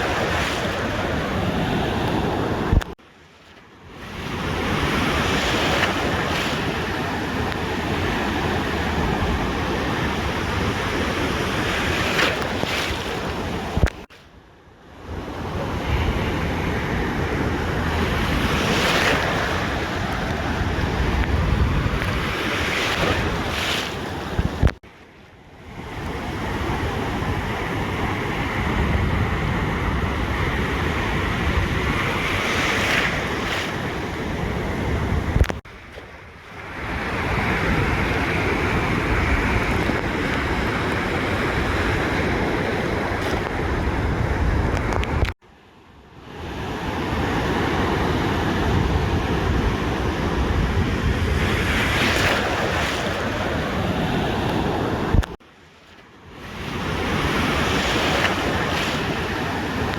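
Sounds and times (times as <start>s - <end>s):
ocean surf on a beach: 0.0s - 59.9s
wind buffeting microphone: 15.2s - 24.8s, 36.6s - 45.4s, 47.5s - 55.4s.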